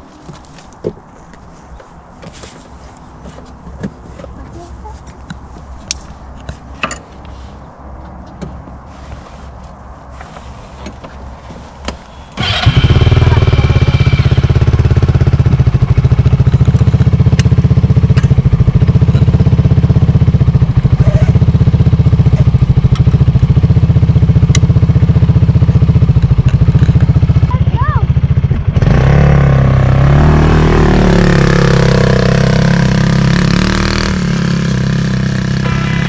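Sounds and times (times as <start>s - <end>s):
vehicle engine starting and idling: 12.1s - 17.6s.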